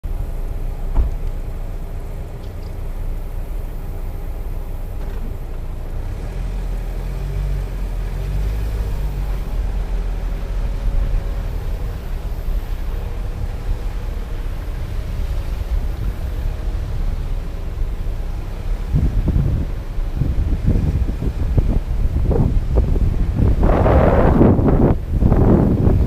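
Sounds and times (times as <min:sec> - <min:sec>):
vehicle engine and tyres rumbling: 0:00.0 - 0:26.0
knock: 0:00.9 - 0:01.2.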